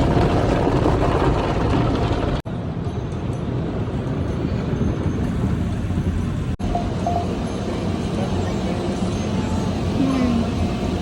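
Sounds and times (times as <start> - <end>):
machine rumble: 0.0 - 11.0.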